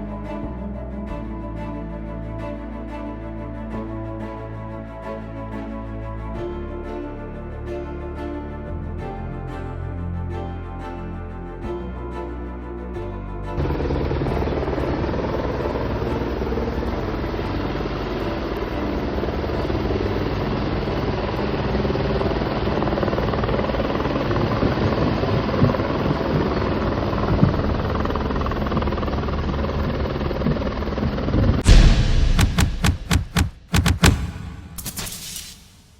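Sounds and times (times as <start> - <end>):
helicopter rotor chopping: 32.1 - 35.8.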